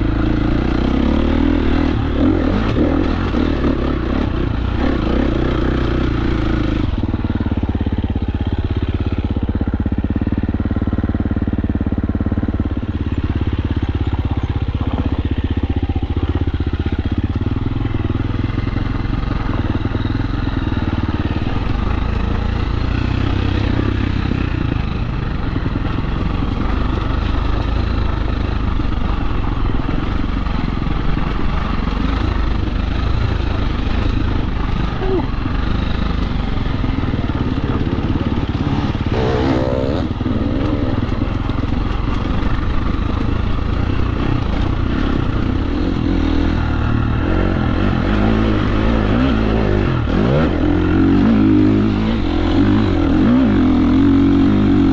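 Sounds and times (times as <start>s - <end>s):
dirt bike engine revving: 0.0s - 7.7s, 18.1s - 54.9s.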